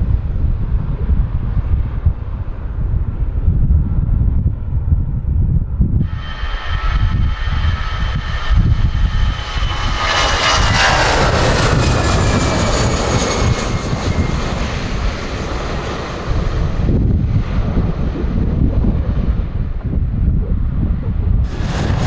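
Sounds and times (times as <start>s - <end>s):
wind rumble on microphone: 0.0s - 22.0s
jet airliner passing: 6.0s - 19.9s, 21.4s - 22.0s.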